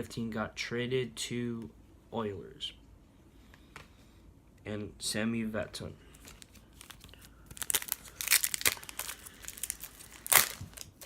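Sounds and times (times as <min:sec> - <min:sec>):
card packaging crinkling: 0:06.1 - 0:11.0.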